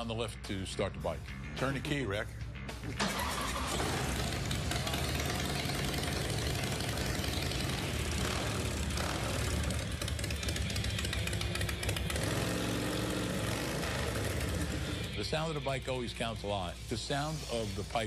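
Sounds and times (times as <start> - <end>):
motorcycle engine idling: 3.6 - 15.2.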